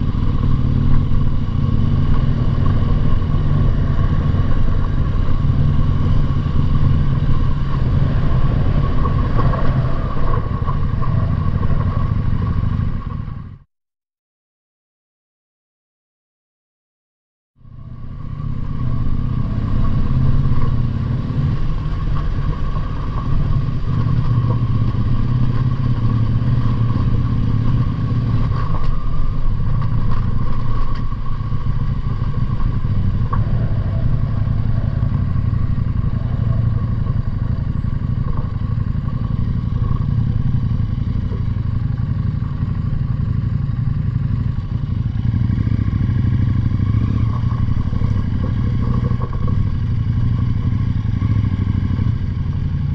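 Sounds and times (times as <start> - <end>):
motorcycle engine droning: 0.0 - 13.6, 17.6 - 52.9.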